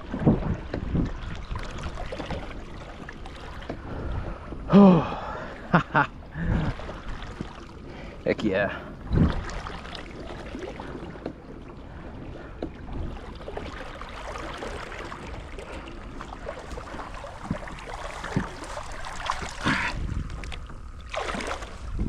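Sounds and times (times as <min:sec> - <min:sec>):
water sloshing against a kayak: 0:00.0 - 0:22.0
water splashes: 0:00.0 - 0:22.0.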